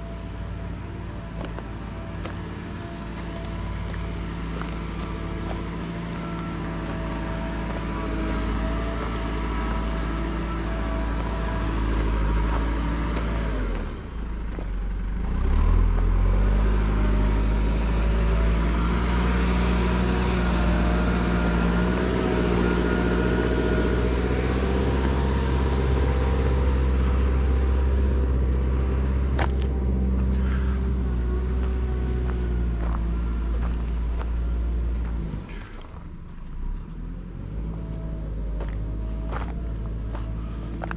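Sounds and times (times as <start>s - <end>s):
car engine running: 0.0s - 40.9s
road noise: 0.0s - 40.9s.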